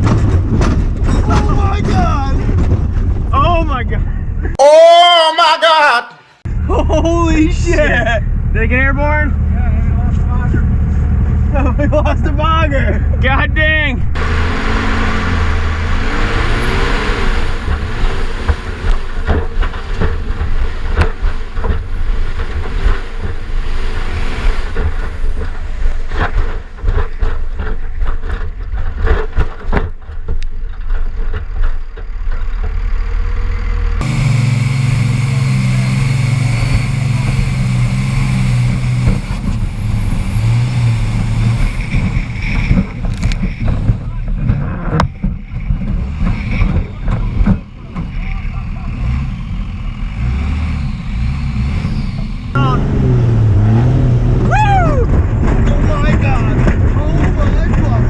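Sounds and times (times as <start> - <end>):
truck body bangs and rattles: 0.0 - 3.8, 16.0 - 33.0, 34.0 - 48.2, 53.5 - 58.0
diesel engine running hard: 14.2 - 28.5, 30.7 - 58.0.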